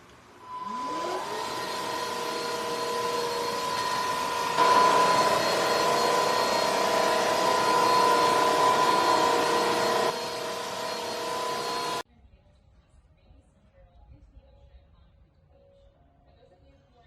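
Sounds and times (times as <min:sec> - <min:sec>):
vacuum cleaner motor whine: 0:00.0 - 0:12.0.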